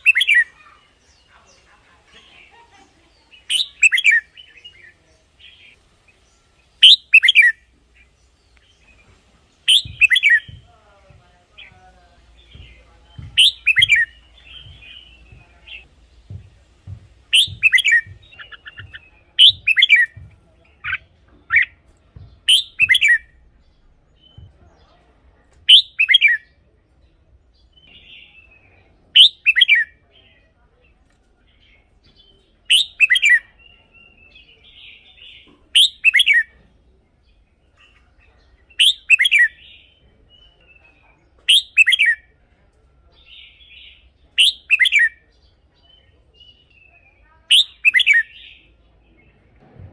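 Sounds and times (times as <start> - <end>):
soft bird chattering: 0.0 - 10.7, 11.5 - 25.0, 25.7 - 26.6, 27.6 - 42.4, 43.2 - 49.2
bird song with falling whistles: 6.8 - 7.6, 9.7 - 10.5, 13.4 - 15.1, 17.3 - 20.1, 22.5 - 23.4, 25.7 - 26.4, 29.2 - 29.9, 32.7 - 34.2, 35.8 - 36.5, 38.7 - 39.6, 41.5 - 42.2, 44.4 - 45.2, 46.8 - 48.4.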